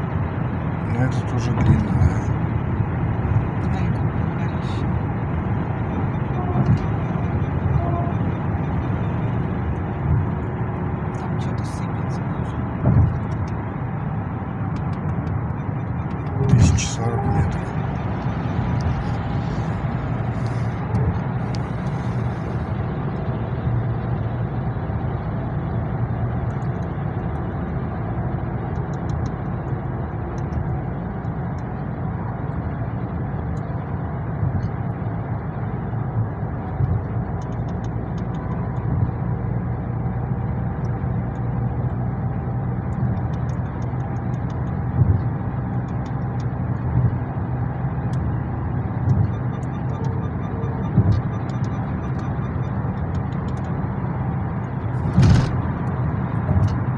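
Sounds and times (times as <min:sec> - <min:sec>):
car engine and tyre rumble: 0:00.0 - 0:56.9.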